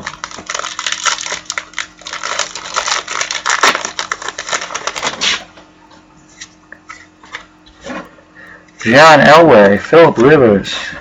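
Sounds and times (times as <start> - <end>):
card packaging crinkling: 0.0 - 5.6.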